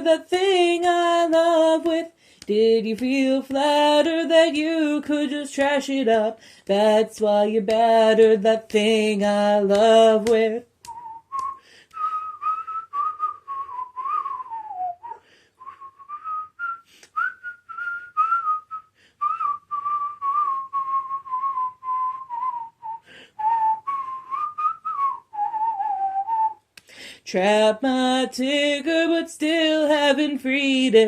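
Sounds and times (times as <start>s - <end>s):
person whistling a melody: 10.8s - 26.7s.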